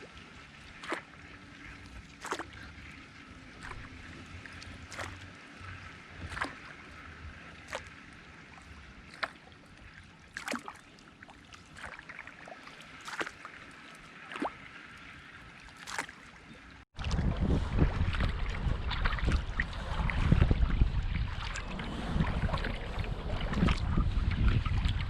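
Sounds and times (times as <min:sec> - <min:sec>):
paddle splashing in water: 0:00.0 - 0:25.0.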